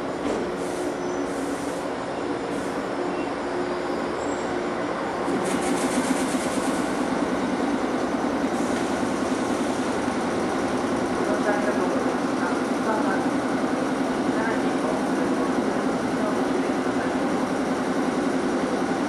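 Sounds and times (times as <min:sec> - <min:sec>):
electric train humming and braking: 0:00.0 - 0:19.0
train rattle: 0:05.2 - 0:19.0.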